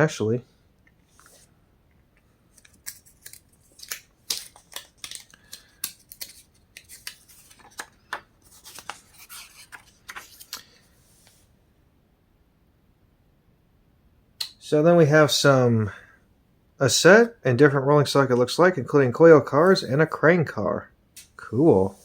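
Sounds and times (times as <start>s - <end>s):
paper pages rustling: 2.5s - 11.5s.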